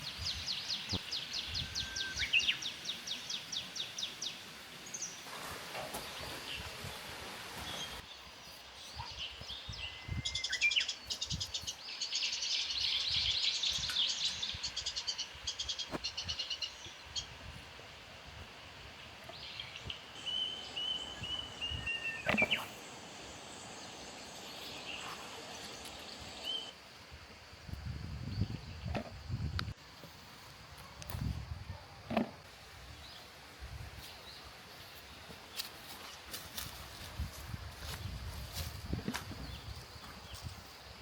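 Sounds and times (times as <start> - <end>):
high bird whistle: 1.5 - 2.6
small birds chirping: 19.3 - 26.7.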